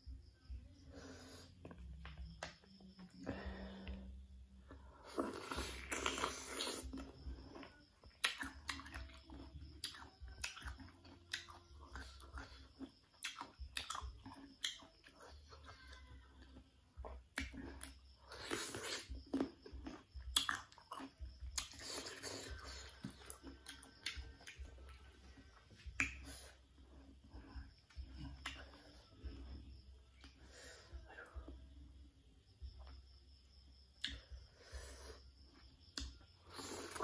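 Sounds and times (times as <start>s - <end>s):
crunchy chewing of raw mango: 3.6s - 15.3s, 16.0s - 30.6s, 34.0s - 37.0s
wet mouth clicks: 20.3s - 20.8s, 25.9s - 26.5s, 28.3s - 28.8s.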